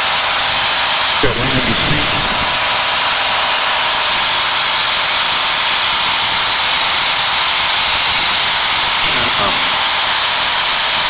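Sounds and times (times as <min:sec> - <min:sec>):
intercom static hiss: 0:01.2 - 0:03.1, 0:09.0 - 0:09.9.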